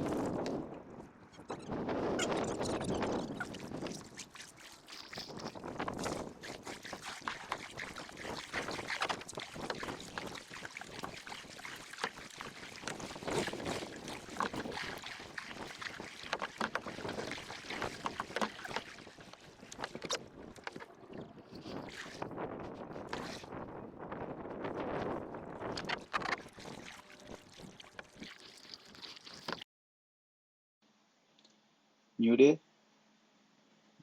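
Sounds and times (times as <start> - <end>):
wind buffeting microphone: 0.0 - 4.2, 5.3 - 11.2, 12.8 - 26.8
water splashing and sloshing: 0.0 - 29.6.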